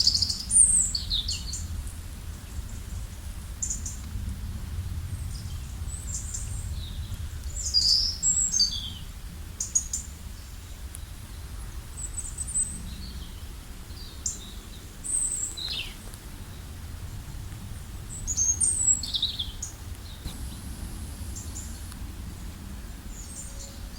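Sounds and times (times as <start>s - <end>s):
low rumble: 16.9s - 23.9s.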